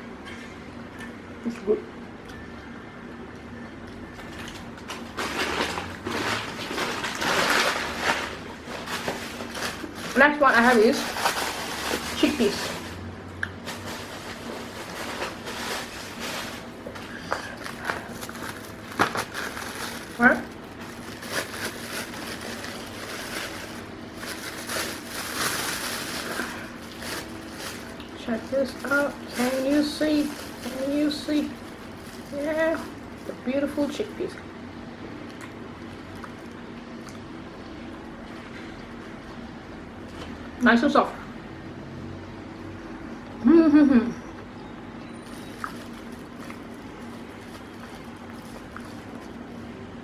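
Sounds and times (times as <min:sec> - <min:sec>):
plastic packaging crinkling: 0:04.1 - 0:34.1, 0:45.2 - 0:49.9.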